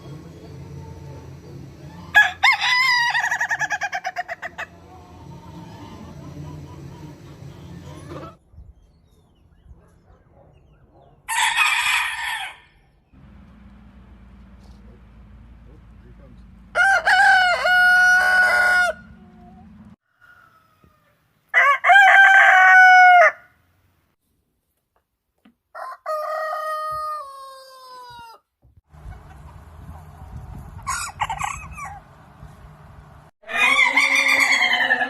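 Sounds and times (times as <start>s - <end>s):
rooster crowing: 0.6s - 8.4s, 11.3s - 12.8s, 16.7s - 23.6s, 25.8s - 28.4s, 33.4s - 35.0s.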